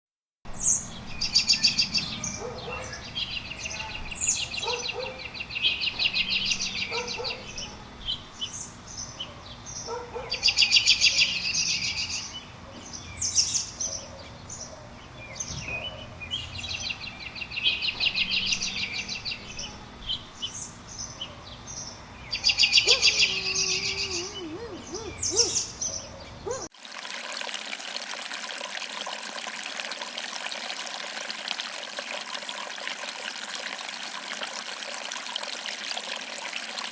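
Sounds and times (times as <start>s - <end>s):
songbirds trilling and chirping: 0.6s - 26.7s.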